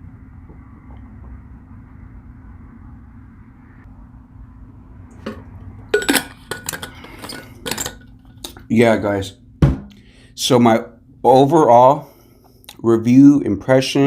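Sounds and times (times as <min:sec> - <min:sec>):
low steady hum: 0:00.0 - 0:14.0
objects clinking on a table: 0:06.0 - 0:08.6.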